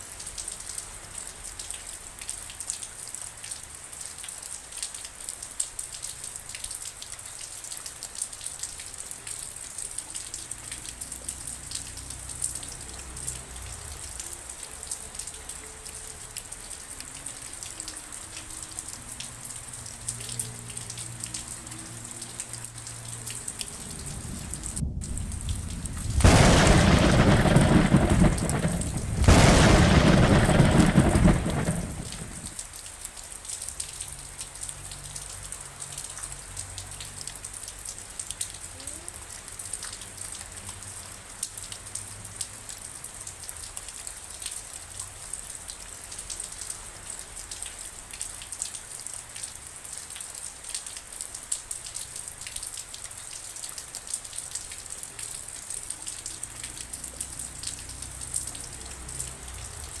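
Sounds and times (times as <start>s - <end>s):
rain drops ticking on a surface: 0.0s - 60.0s
thunderclap: 23.4s - 32.6s.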